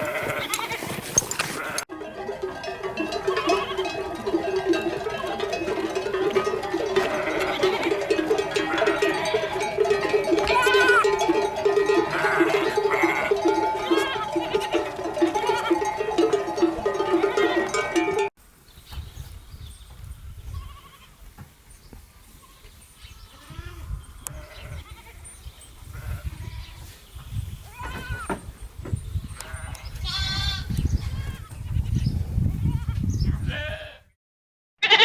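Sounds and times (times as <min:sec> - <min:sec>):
sheep bleating: 0:00.0 - 0:00.8, 0:01.6 - 0:18.3, 0:30.0 - 0:30.7, 0:32.8 - 0:34.0, 0:34.8 - 0:35.0
plucked-string background music: 0:01.9 - 0:18.3.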